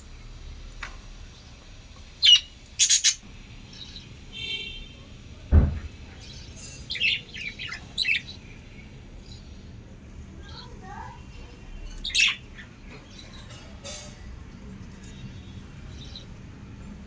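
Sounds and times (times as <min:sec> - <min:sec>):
lovebirds chirping and squawking: 0:00.8 - 0:16.8
dull knock: 0:05.5 - 0:05.9.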